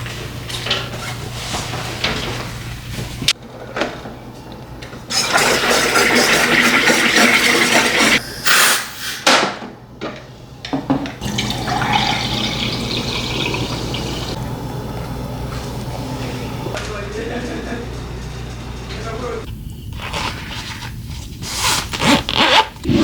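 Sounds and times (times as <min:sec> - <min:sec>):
water running from a tap: 0:05.1 - 0:08.2, 0:11.2 - 0:16.7.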